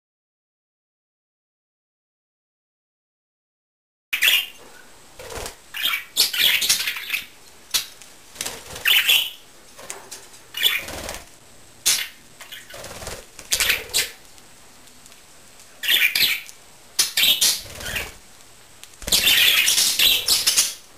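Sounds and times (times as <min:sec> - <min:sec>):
budgerigar wings fluttering: 0:05.2 - 0:05.9, 0:07.8 - 0:14.2, 0:17.0 - 0:18.2, 0:19.0 - 0:20.8.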